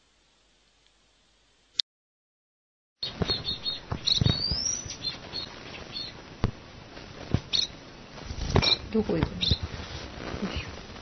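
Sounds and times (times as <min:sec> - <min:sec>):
bird chick chirping: 0:03.0 - 0:06.2, 0:07.5 - 0:07.8, 0:08.6 - 0:09.7
handling thumps and rustles: 0:08.2 - 0:10.7.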